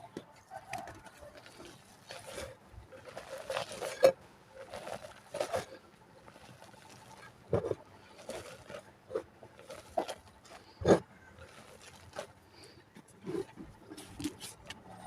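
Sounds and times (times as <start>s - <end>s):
dry mud crumbling in hands: 0.7s - 10.8s.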